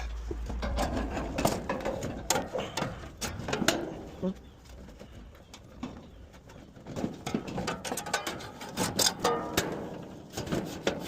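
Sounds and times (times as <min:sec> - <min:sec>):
metallic clicks and knocks: 0:07.0 - 0:11.0.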